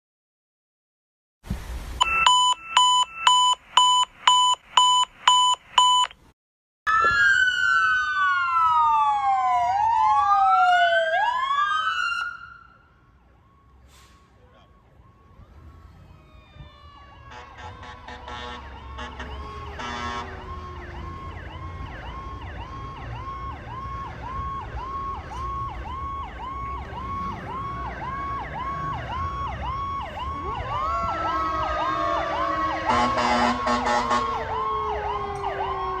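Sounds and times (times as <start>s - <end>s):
fast yelping siren: 6.9s - 12.8s, 14.6s - 36.0s
fire engine sirens wailing: 6.9s - 36.0s.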